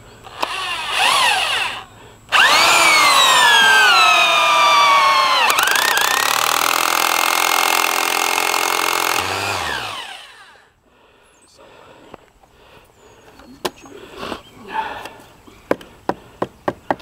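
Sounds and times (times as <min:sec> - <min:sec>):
electric saw cutting board: 0:00.3 - 0:10.6.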